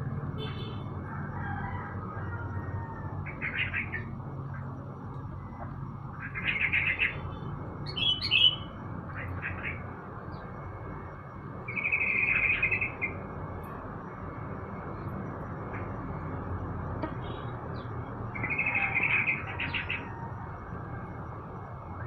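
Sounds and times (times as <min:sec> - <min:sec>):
bird chirps: 0:06.2 - 0:09.8, 0:11.6 - 0:13.2, 0:17.0 - 0:20.1
songbird trilling: 0:06.2 - 0:09.8, 0:11.7 - 0:13.2, 0:18.3 - 0:20.1.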